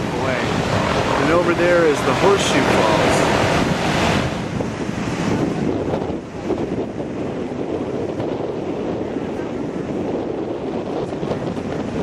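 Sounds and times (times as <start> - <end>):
waterfall roaring: 0.0 - 6.5
wind buffeting microphone: 0.0 - 12.0.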